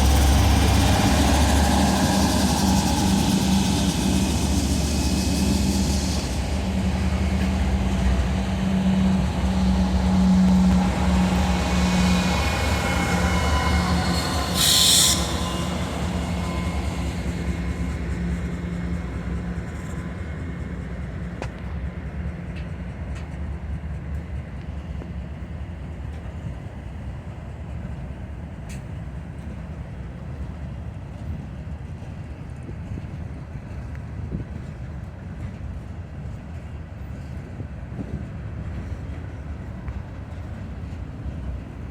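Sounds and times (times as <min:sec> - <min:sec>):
locomotive engines humming: 0:00.0 - 0:41.9
train wheels rumbling on rails: 0:00.0 - 0:41.9
high-pitched wheel squeal: 0:09.7 - 0:18.1.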